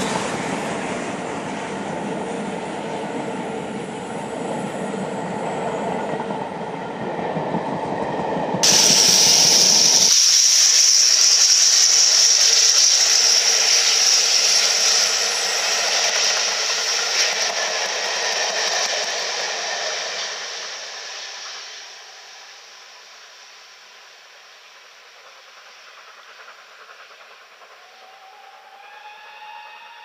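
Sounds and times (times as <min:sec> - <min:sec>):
train coaches running on track: 0:00.0 - 0:30.0
steady hiss: 0:08.6 - 0:28.0.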